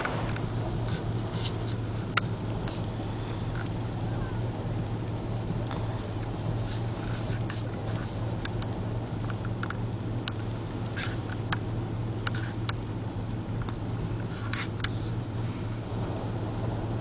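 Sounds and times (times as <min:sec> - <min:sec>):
sharp ticks and clicks: 0:07.0 - 0:12.9.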